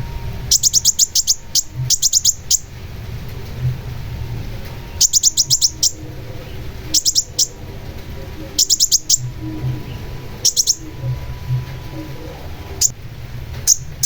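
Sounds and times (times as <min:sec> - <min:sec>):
low background rumble: 0:00.0 - 0:14.0
bird high chattering calls: 0:00.5 - 0:02.8, 0:04.8 - 0:12.9, 0:13.6 - 0:14.0.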